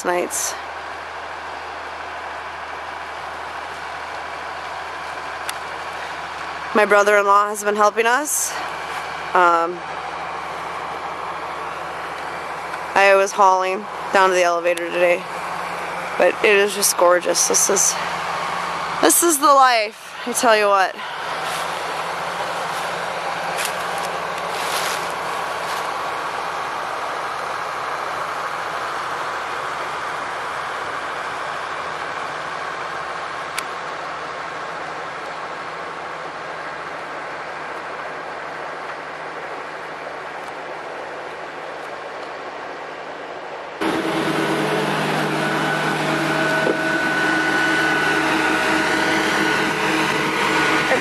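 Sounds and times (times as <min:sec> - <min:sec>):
harvest machinery running: 0:00.0 - 0:37.4, 0:43.8 - 0:51.0.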